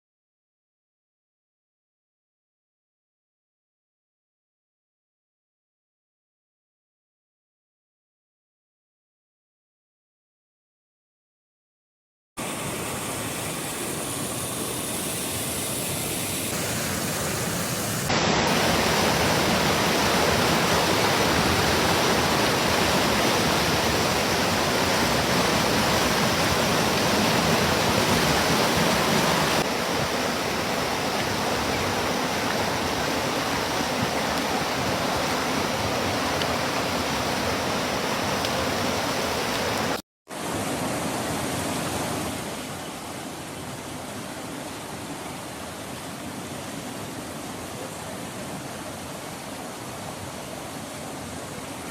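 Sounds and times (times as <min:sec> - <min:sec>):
stream rushing over rocks: 0:12.4 - 0:51.9.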